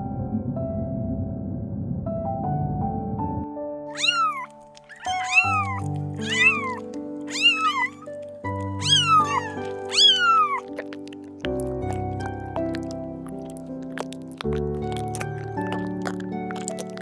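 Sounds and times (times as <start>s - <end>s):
background music: 2.2s - 17.0s
cat meowing: 3.9s - 11.3s.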